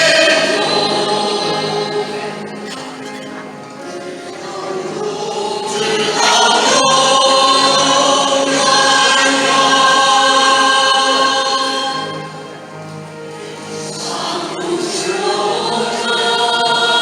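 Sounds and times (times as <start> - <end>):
congregation singing a hymn: 0.0 - 17.0.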